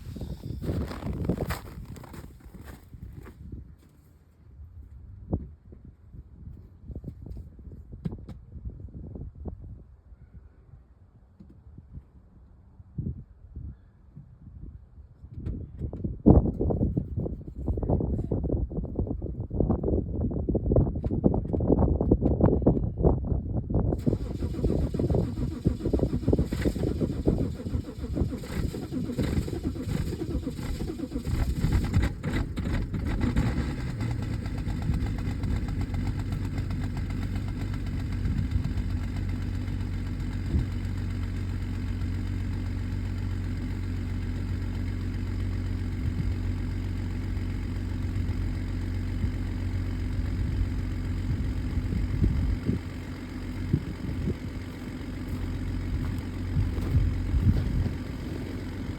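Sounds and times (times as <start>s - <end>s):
diesel engine starting and idling: 0.0s - 2.8s, 24.0s - 58.9s.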